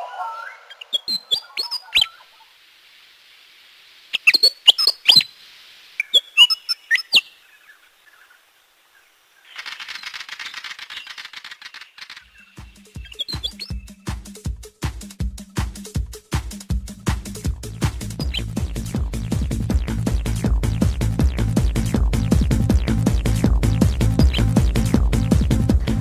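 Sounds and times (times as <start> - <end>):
sharp sweeping bird chirps: 0.0 - 2.6, 4.1 - 8.4, 9.4 - 14.0, 18.2 - 18.6, 24.2 - 24.6.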